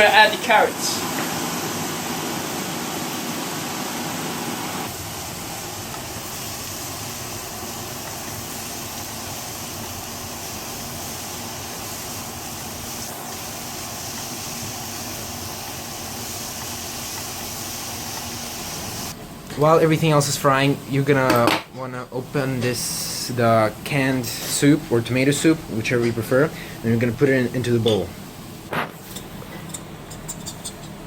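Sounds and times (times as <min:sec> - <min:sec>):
vegetables sizzling in a pan: 0:00.0 - 0:21.4.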